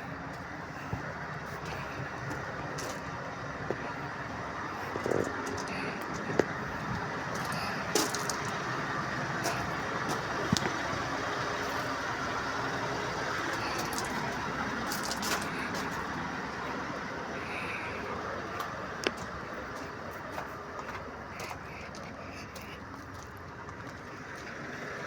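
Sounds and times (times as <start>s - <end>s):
truck engine running: 0.0s - 25.0s
sharp clicks and rattles: 13.6s - 16.1s.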